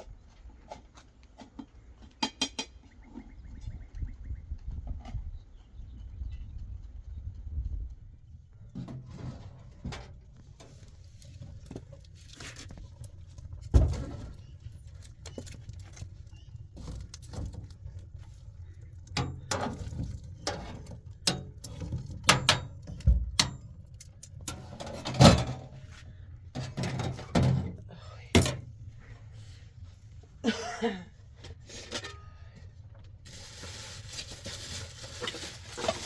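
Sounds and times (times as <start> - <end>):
steady low rumble: 6.0 - 31.4.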